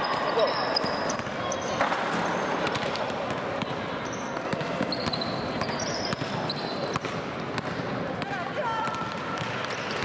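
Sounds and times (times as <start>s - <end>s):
crowd chatter: 0.0s - 10.0s
basketball bouncing on gym floor: 2.6s - 10.0s.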